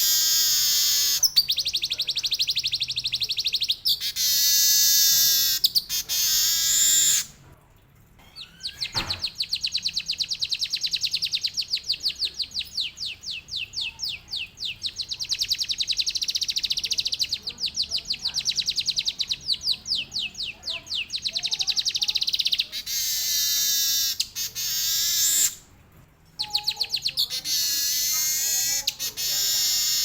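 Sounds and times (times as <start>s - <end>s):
bird singing rapid warble: 8.3s - 25.6s, 26.4s - 30.0s.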